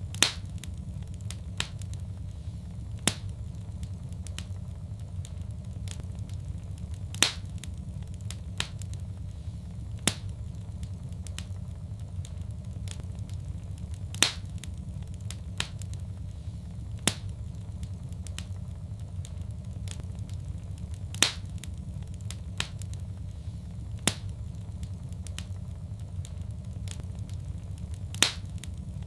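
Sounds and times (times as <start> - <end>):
loud fire pops: 0.0 - 29.0
low rumble: 0.0 - 29.0
wood fire crackling: 0.0 - 29.0.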